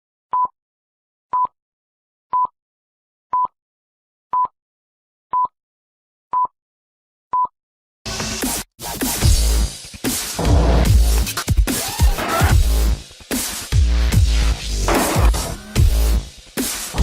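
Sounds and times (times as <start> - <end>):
electronic dance music: 8.1 - 17.0.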